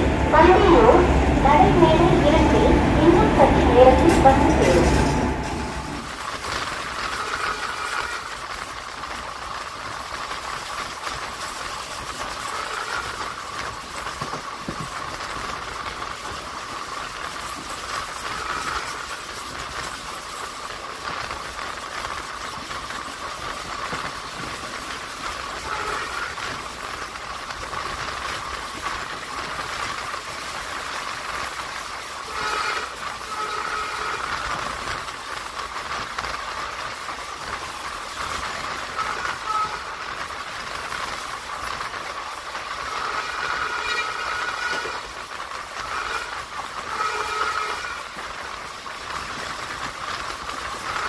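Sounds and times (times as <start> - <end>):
train wheels on rails: 0.0 - 51.0.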